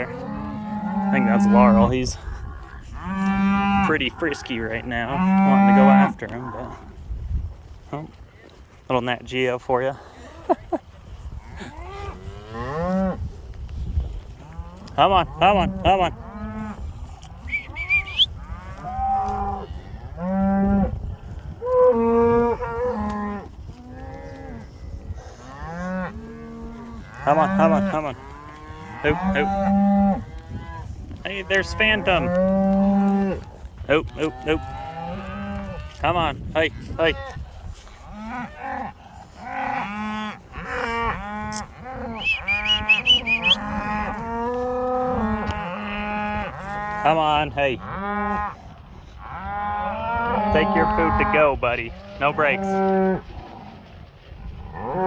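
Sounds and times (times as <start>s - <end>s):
cattle mooing: 0.0s - 6.8s, 14.4s - 21.0s, 21.6s - 37.3s, 38.0s - 48.6s, 49.2s - 53.8s
short higher-pitched calls: 17.4s - 18.3s, 42.2s - 43.6s.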